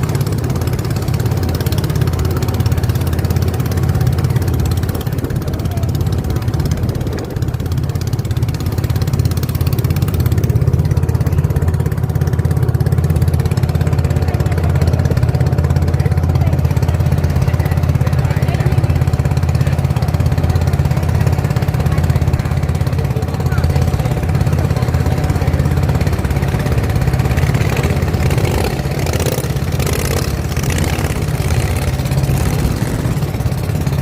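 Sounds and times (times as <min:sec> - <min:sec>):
motorboat engine throbbing: 0:00.0 - 0:34.0.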